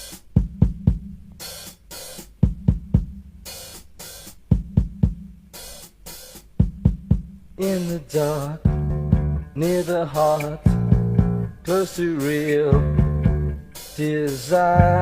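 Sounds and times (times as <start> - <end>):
open hi-hat washes: 0.0 - 15.0
bass drum hits: 8.7 - 9.5, 10.7 - 11.6, 12.7 - 13.6.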